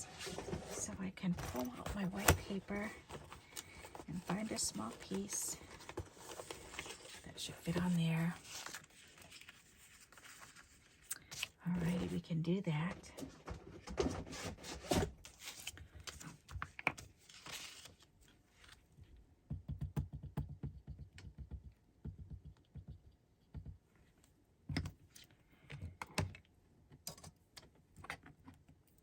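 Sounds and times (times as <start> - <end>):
paper rustling: 0.0 - 12.2, 13.9 - 18.8.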